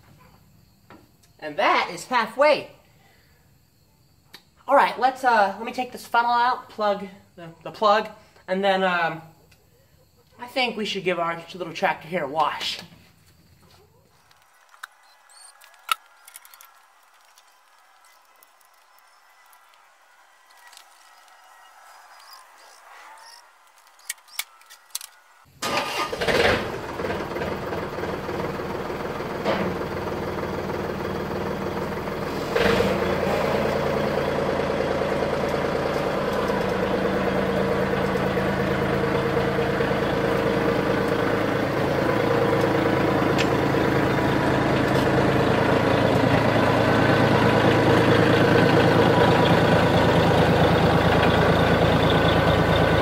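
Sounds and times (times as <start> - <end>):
tractor engine starting and running: 10.4 - 53.0
starter clicks: 14.2 - 26.1.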